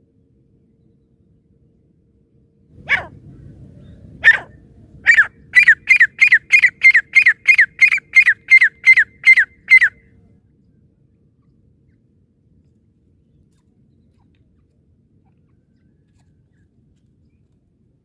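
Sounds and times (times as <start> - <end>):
francolin calling: 4.2 - 10.0.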